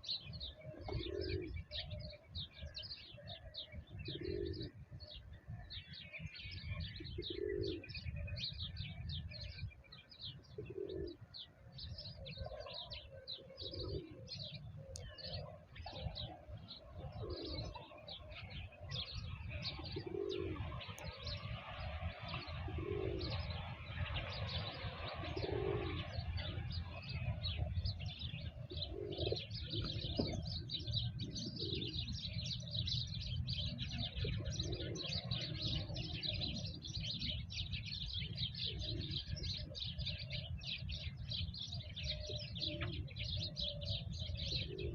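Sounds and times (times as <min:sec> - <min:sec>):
doves cooing: 0:00.0 - 0:44.9
songbirds chirping: 0:00.0 - 0:44.9.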